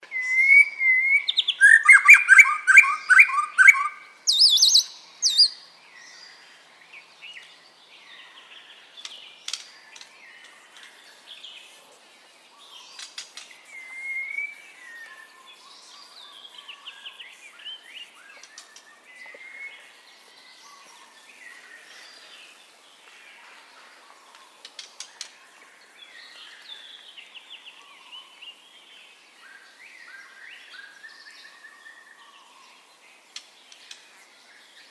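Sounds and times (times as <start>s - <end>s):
bird singing whistled trills: 0.0s - 6.4s, 12.6s - 22.6s.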